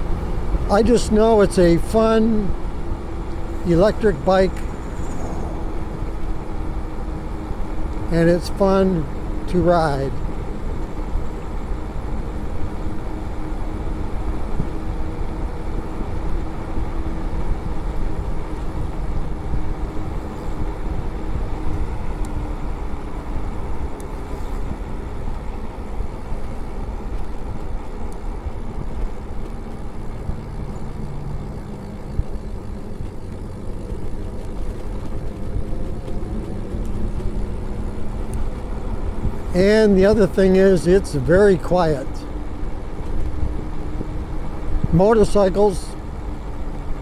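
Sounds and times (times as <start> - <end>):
faint steady tones: 0.0 - 15.9, 25.2 - 47.0
faint motor whine: 0.0 - 47.0
wind rush: 4.5 - 7.9.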